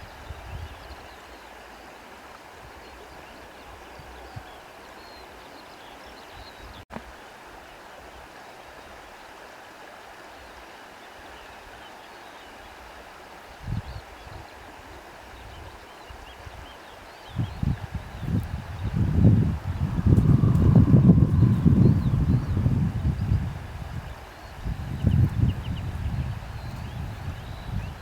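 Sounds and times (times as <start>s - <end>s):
wind rushing through foliage: 0.0s - 28.0s
wind gusts buffeting microphone: 17.3s - 28.0s.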